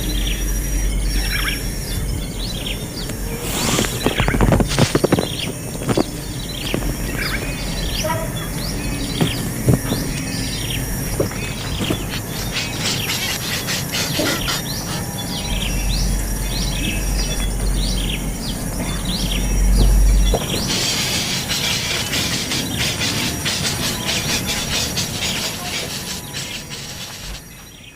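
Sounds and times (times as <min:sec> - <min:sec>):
nestling birds chirping: 0:00.0 - 0:27.9.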